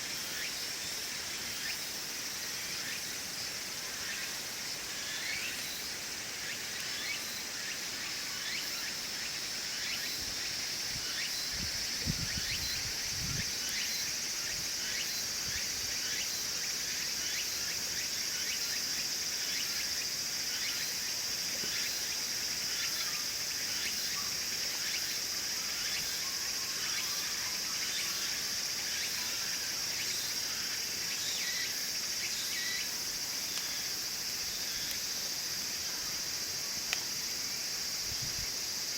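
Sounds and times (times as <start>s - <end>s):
insects chorus: 0.0s - 38.9s
wood fire crackling: 34.8s - 35.7s, 36.8s - 37.2s.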